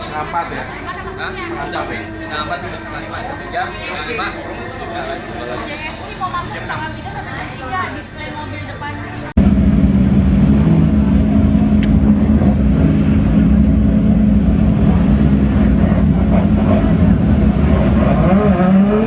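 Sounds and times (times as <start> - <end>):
car engine at high revs: 9.4 - 19.0.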